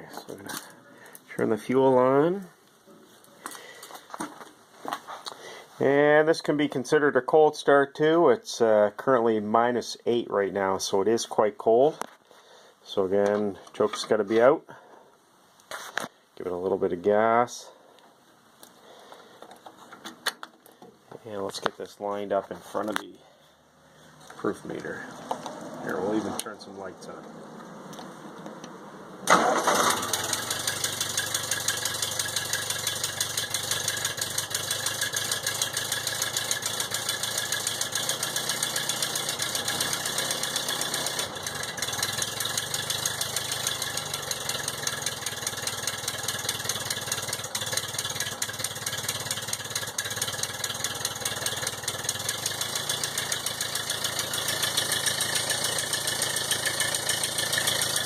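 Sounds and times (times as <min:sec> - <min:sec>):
tractor engine starting and running: 0:24.1 - 0:58.0.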